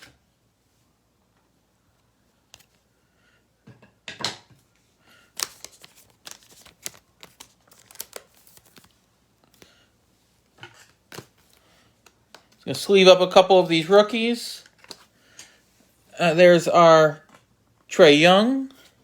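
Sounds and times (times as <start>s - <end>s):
plastic packaging crinkling: 5.2s - 9.7s.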